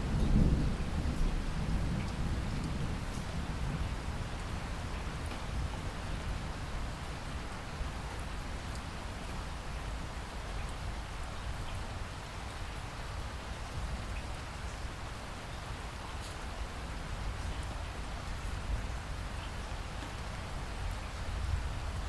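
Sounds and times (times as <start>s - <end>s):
steady rain hiss: 0.0s - 22.0s
faint rain drop ticks: 1.9s - 3.4s, 8.7s - 9.4s.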